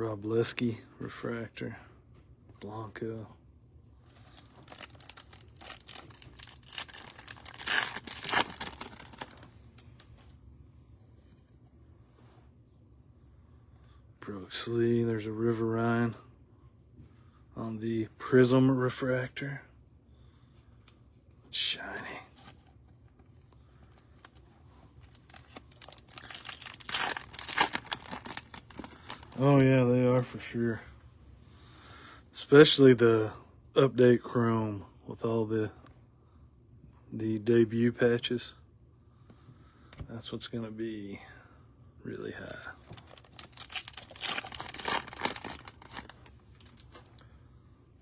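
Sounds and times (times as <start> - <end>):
plastic wrapper tearing and crinkling: 4.2 - 10.1, 25.0 - 30.3, 42.8 - 47.2.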